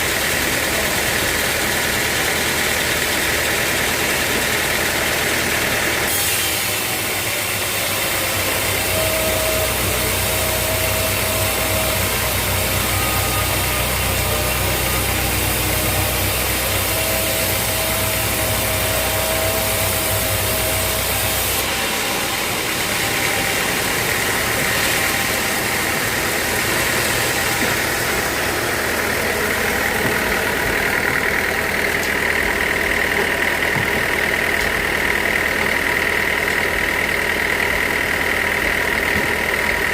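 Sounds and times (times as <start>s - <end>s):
sawmill machinery running: 0.0s - 39.9s
deep low hum: 8.6s - 35.6s.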